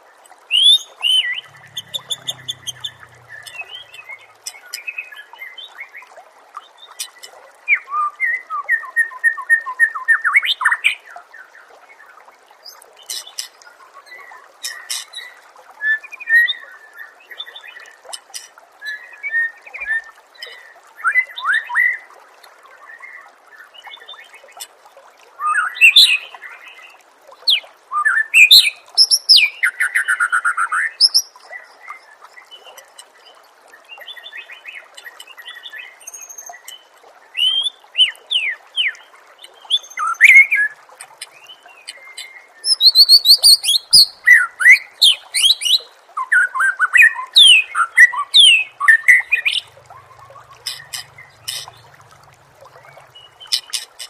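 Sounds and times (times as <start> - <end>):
songbird song: 0.5 - 24.7, 25.4 - 54.0.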